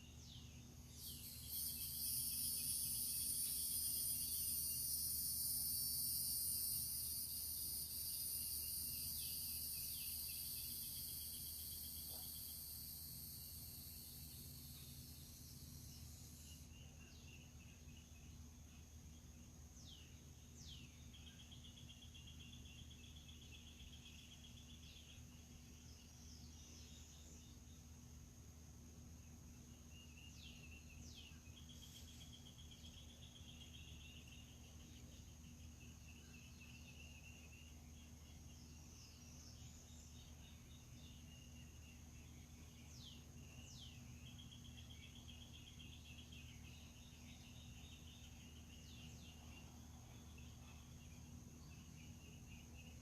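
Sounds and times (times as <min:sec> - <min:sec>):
bird singing with trill: 0:00.0 - 0:18.4, 0:29.8 - 0:53.0
insect buzz: 0:00.0 - 0:53.0
high-pitched insect drone: 0:00.8 - 0:17.2.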